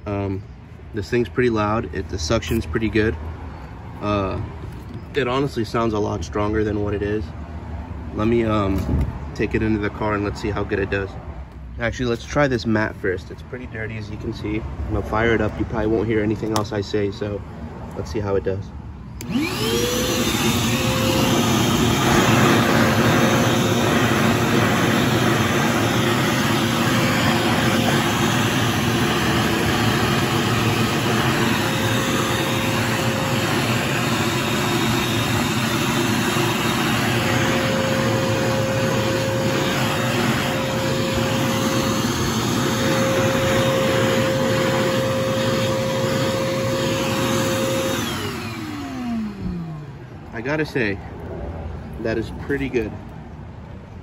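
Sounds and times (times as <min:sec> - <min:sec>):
vacuum nozzle on floor mat: 0:19.2 - 0:49.9
shop vac motor whine: 0:19.2 - 0:50.6.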